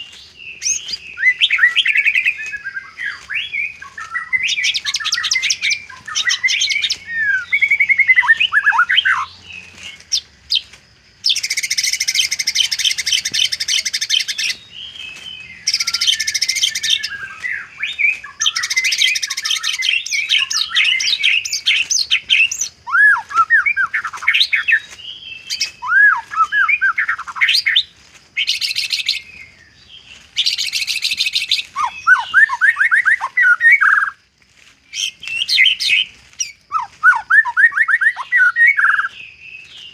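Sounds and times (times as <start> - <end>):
bird singing varied song: 0.0 - 39.9.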